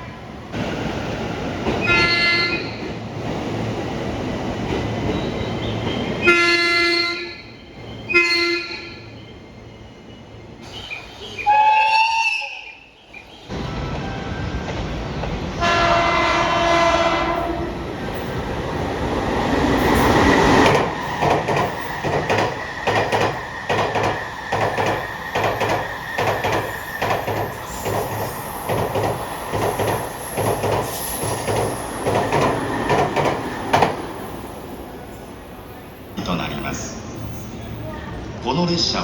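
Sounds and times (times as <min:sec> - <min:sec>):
train air horn blast: 0:01.8 - 0:02.8, 0:06.2 - 0:07.4, 0:08.1 - 0:09.0, 0:15.6 - 0:17.8
train wheels clattering: 0:19.4 - 0:34.4.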